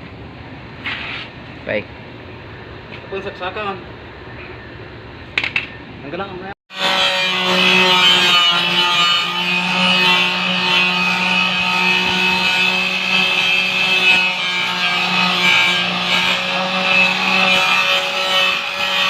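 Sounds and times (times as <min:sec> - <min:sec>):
angle grinder grinding metal: 0:06.7 - 0:19.0.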